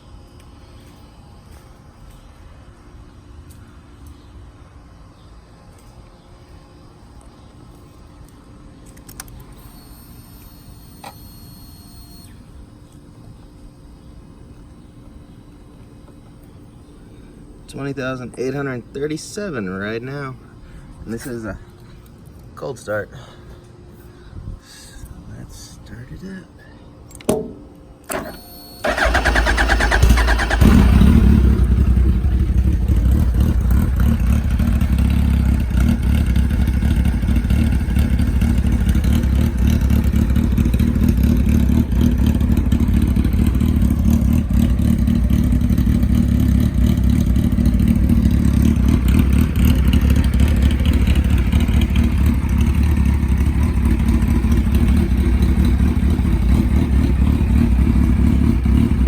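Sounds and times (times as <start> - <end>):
starter motor cranking: 28.1 - 32.0
motorcycle engine idling: 28.8 - 59.0.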